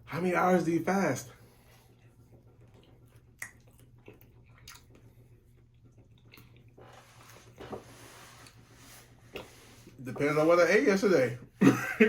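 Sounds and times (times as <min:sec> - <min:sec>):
person chewing food: 0:01.9 - 0:07.8
wet mouth clicks and smacks: 0:02.6 - 0:06.7.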